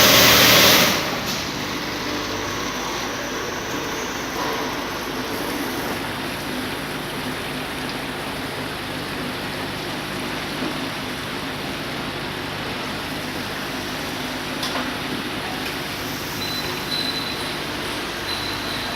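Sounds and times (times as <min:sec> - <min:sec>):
water jets hissing: 0:00.0 - 0:08.4.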